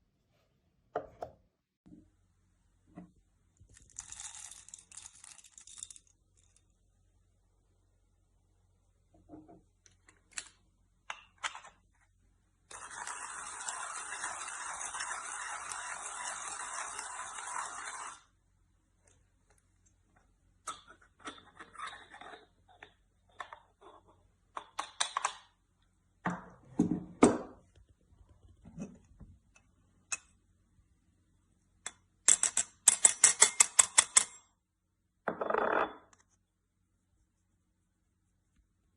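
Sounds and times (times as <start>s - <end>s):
metal parts clicking and knocking: 31.9s - 34.5s.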